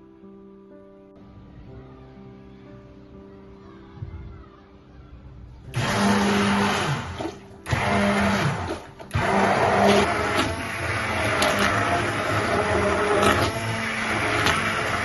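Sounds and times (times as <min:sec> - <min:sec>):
blender motor running: 0:05.8 - 0:15.0.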